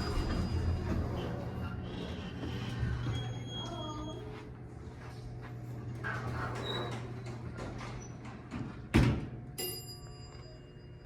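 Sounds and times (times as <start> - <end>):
elevator hum: 0.0 - 8.4.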